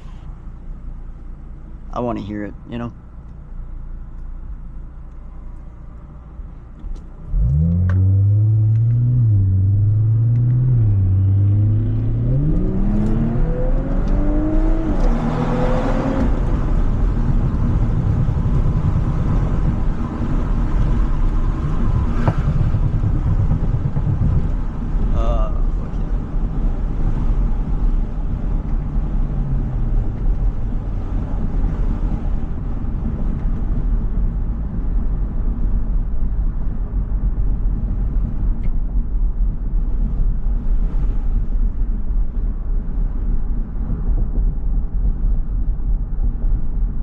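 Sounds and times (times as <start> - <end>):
car engine accelerating hard: 7.2 - 34.0.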